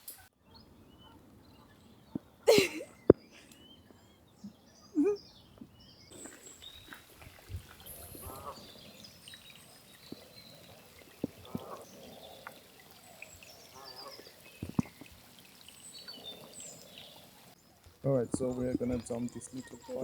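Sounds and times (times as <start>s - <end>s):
small birds chirping: 0.0s - 20.0s
waterfowl calling: 6.1s - 20.0s.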